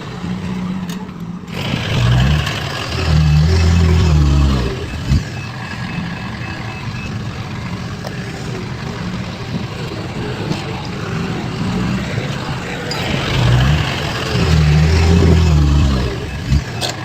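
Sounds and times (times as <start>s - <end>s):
diesel engine running: 0.0s - 17.0s
reversing alarm beeps: 2.3s - 8.1s, 12.9s - 17.0s.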